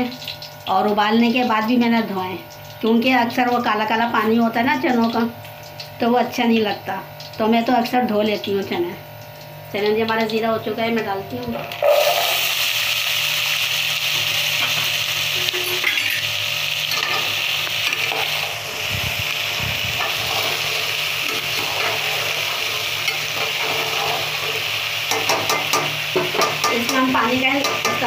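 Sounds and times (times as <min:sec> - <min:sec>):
chickpeas sizzling in hot oil: 0:00.0 - 0:28.0
metal skimmer scraping pot: 0:10.8 - 0:12.5, 0:14.1 - 0:28.0.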